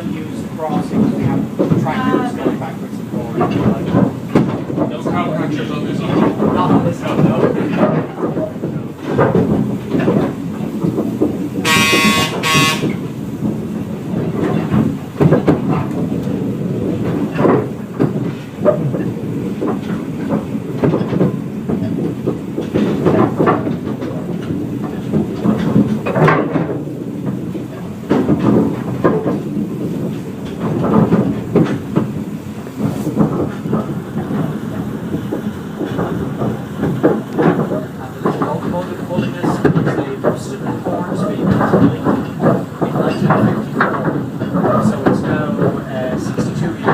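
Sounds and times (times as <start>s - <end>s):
train wheels clattering on rails: 0.0s - 46.9s
train whistle toot: 11.6s - 13.0s.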